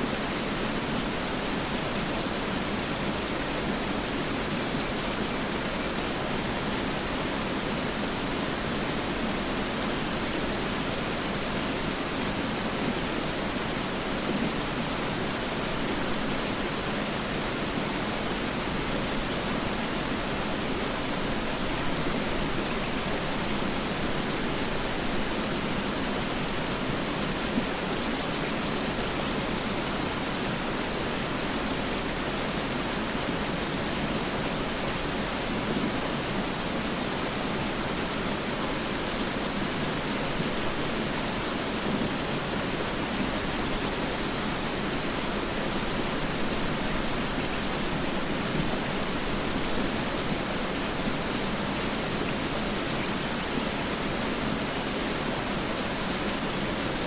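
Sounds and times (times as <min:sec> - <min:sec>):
river rushing over rocks: 0:00.1 - 0:57.0.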